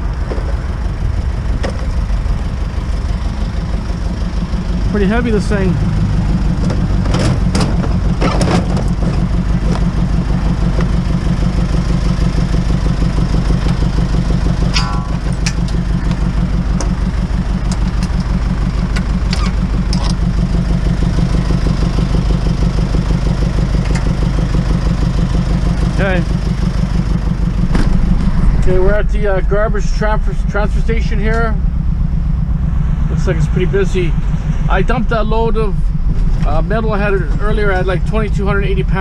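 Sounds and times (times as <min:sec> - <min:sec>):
road rumble: 0:00.0 - 0:39.0
truck engine running: 0:00.0 - 0:39.0.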